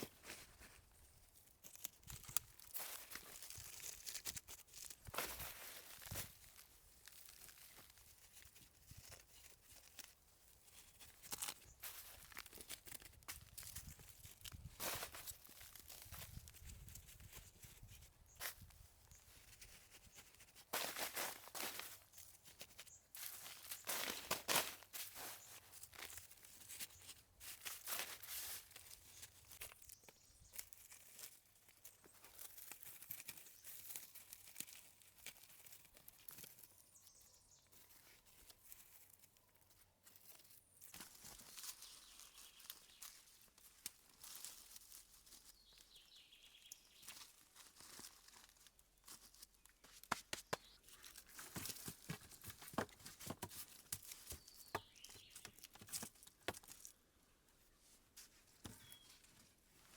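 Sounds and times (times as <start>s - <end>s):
faint rustling and crackling: 37.7s - 46.0s.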